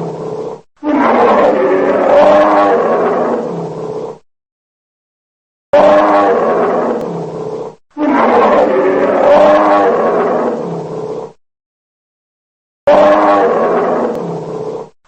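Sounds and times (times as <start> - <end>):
large animal calling: 0.0 - 4.2, 5.8 - 11.4, 12.9 - 15.0.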